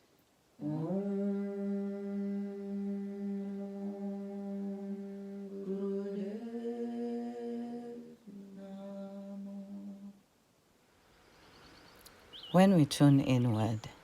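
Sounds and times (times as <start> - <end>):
person humming a chanted note: 0.6 - 10.2.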